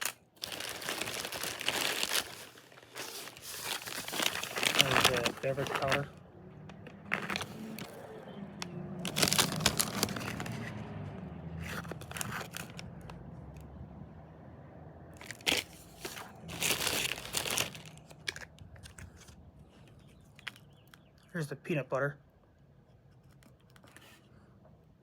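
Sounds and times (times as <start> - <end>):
plastic packaging crinkling: 0.0 - 10.8, 11.6 - 13.2, 15.2 - 19.4.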